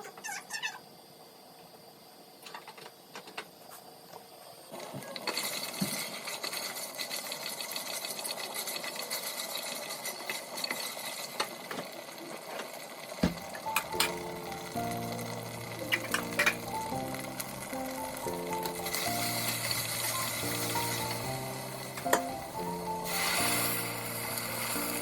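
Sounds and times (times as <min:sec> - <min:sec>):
motorised appliance rattling: 0:05.0 - 0:25.0.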